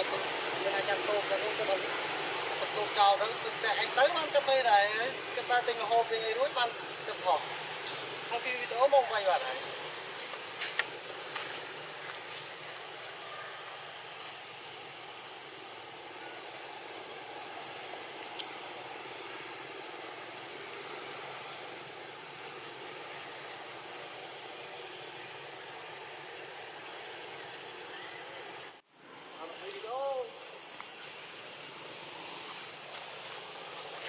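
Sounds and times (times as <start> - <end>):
steady hiss: 0.0 - 34.0
faint clicks: 18.2 - 18.5.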